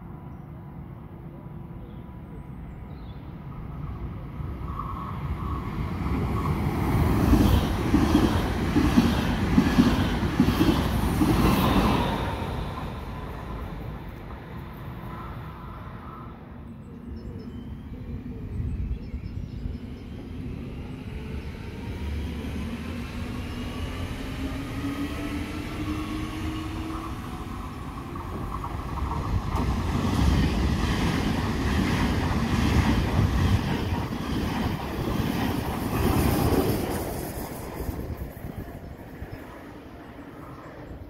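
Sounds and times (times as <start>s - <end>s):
electric train whine: 4.5s - 41.0s
train wheels rumbling on rail: 4.7s - 15.2s, 19.6s - 41.0s.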